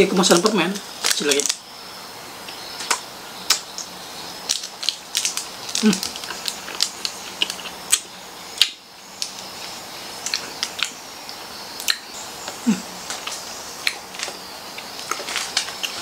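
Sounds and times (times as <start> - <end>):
chewing with wet mouth clicks: 4.5 - 9.5, 10.2 - 16.0.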